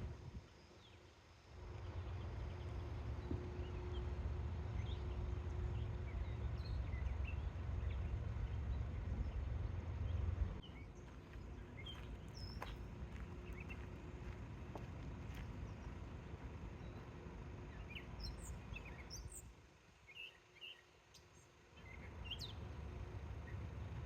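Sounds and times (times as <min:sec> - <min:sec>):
birds chirping: 0:04.7 - 0:19.5.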